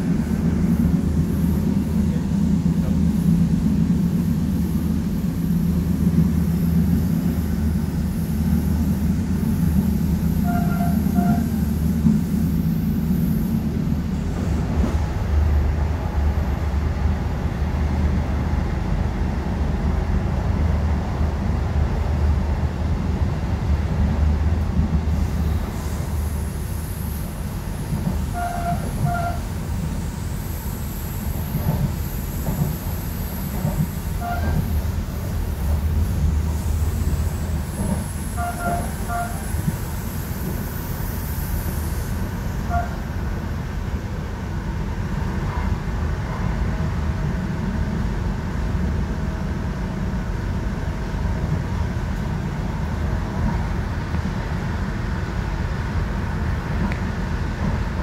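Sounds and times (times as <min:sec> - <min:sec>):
train carriage rumble: 0:00.0 - 0:58.0
faint train horn toots: 0:10.3 - 0:11.8, 0:28.2 - 0:29.6, 0:34.1 - 0:34.7, 0:38.2 - 0:39.8, 0:42.5 - 0:43.2.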